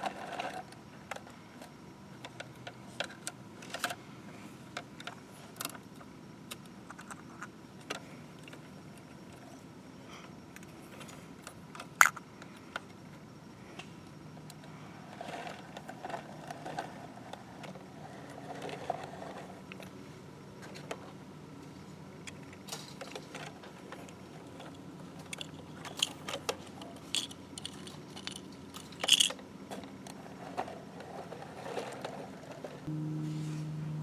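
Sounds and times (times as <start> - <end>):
toy truck clicking and rattling: 0.0 - 4.0, 15.2 - 19.9, 22.3 - 32.8
low hum: 32.9 - 34.0.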